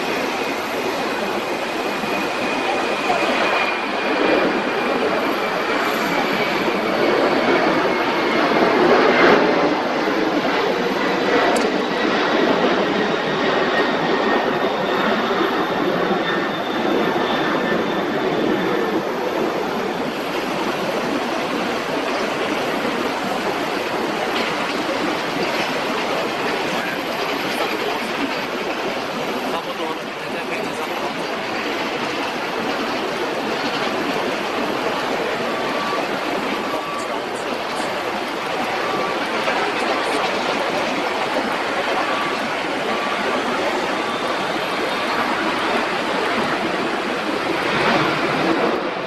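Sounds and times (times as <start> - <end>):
jet engines passing: 0.0 - 49.0.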